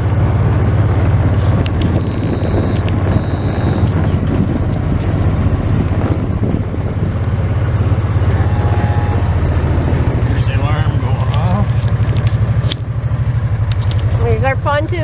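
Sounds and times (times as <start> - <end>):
wind on microphone: 0.0 - 12.7
off-road vehicle engine running: 0.0 - 15.0
short high-pitched beeps: 1.8 - 4.0, 8.2 - 9.5.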